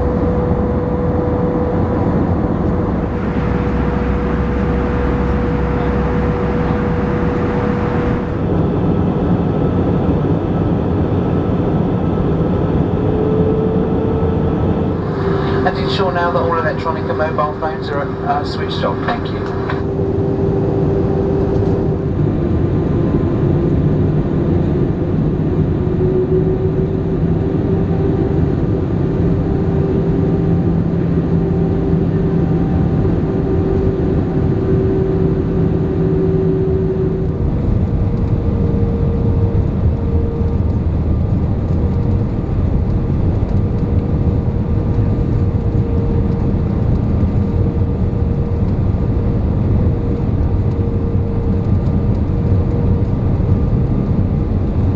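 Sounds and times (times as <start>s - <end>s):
rushing air in aircraft cabin: 0.0s - 10.4s, 14.4s - 26.2s
jet engines roaring: 0.0s - 54.9s.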